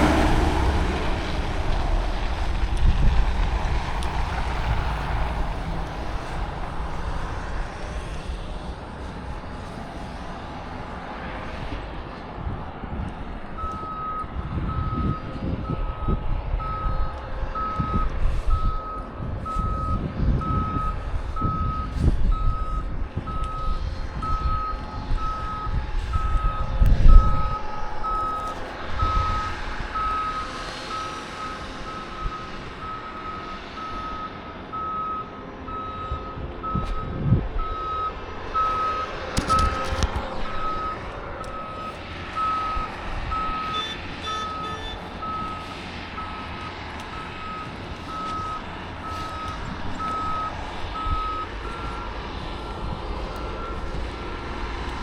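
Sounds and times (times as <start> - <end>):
low uneven rumble: 0.0 - 55.0
vehicle reversing alarm beeping: 13.5 - 55.0.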